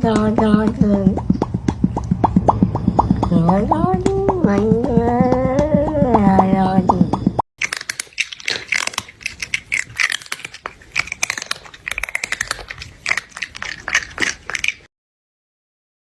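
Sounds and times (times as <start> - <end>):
dense crunching and crackling: 7.6 - 14.9.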